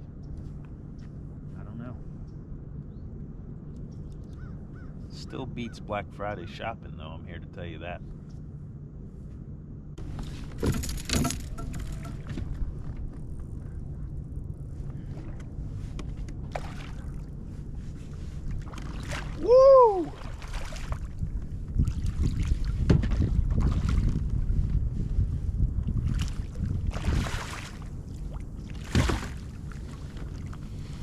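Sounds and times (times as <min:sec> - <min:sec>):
steady low hum: 0:00.0 - 0:31.0
man shouting: 0:19.4 - 0:20.2.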